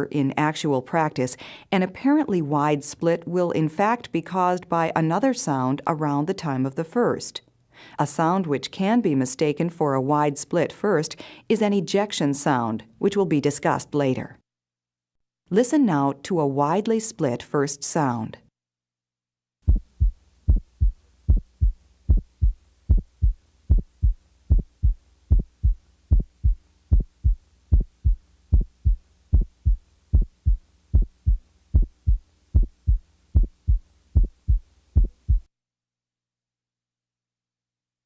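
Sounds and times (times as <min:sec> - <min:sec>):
heartbeat through stethoscope: 0:19.6 - 0:35.5
faint steady hum: 0:19.7 - 0:35.5.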